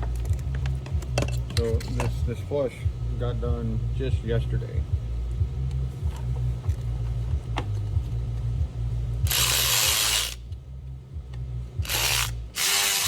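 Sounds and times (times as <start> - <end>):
ratchet working fasteners: 9.2 - 10.6, 11.8 - 13.0.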